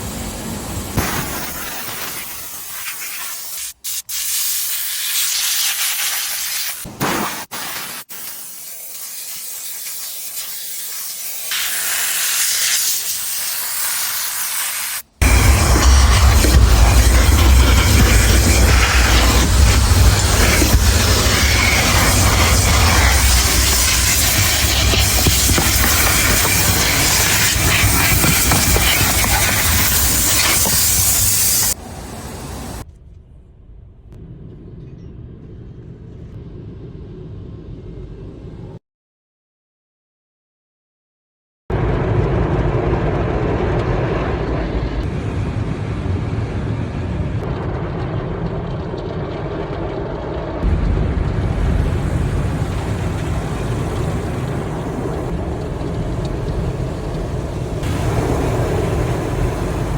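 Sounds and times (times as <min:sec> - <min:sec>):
high-pressure water spray hiss: 0:00.0 - 0:32.8, 0:51.5 - 0:59.9
loud low rumble: 0:15.2 - 0:25.5, 0:31.8 - 0:38.8, 0:41.7 - 0:59.9.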